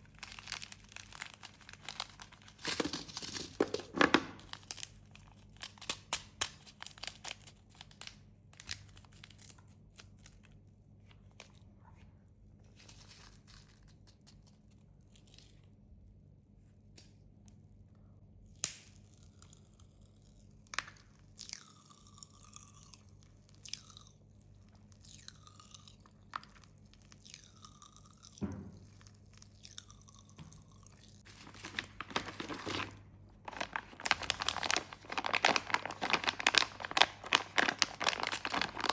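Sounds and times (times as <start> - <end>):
candy wrappers crinkling: 0.0 - 11.6, 12.7 - 15.8, 22.5 - 28.3, 29.0 - 38.9.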